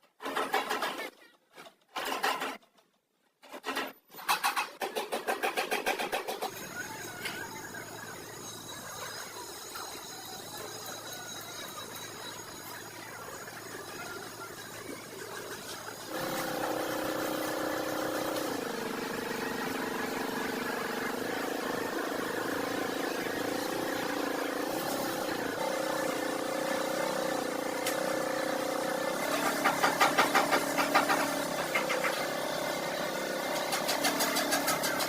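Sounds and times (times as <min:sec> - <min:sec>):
loud engine pulses: 0:06.4 - 0:35.0
car engine running: 0:12.0 - 0:32.3.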